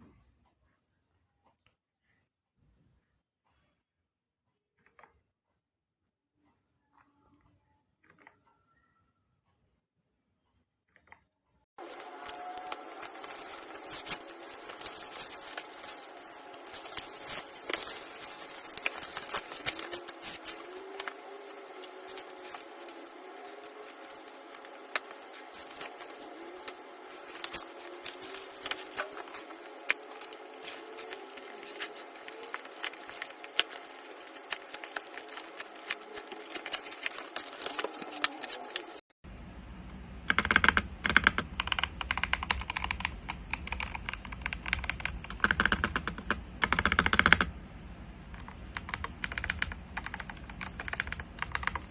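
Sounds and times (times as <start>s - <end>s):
mechanical keyboard typing: 40.3s - 47.5s, 48.3s - 51.9s.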